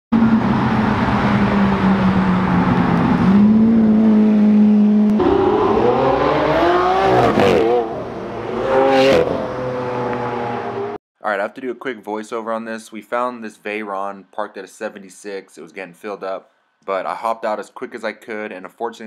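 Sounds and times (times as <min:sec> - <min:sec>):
car engine accelerating: 0:00.2 - 0:11.0.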